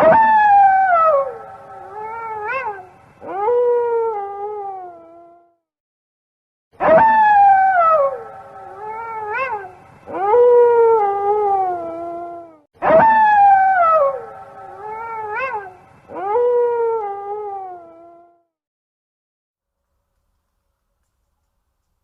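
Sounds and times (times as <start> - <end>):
wolf howling: 0.0 - 5.4, 6.8 - 18.3
wolf yelp: 0.0 - 5.4, 6.8 - 18.3.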